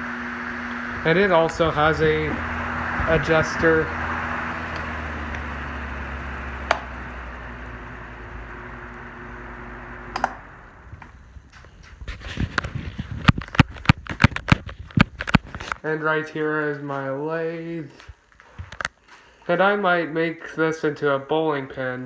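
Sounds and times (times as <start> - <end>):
electric fan whirring: 0.0 - 22.0
fan switch click: 4.7 - 5.5, 6.6 - 7.0, 10.1 - 11.1
sharp clicks and knocks: 6.6 - 7.0, 10.1 - 15.8.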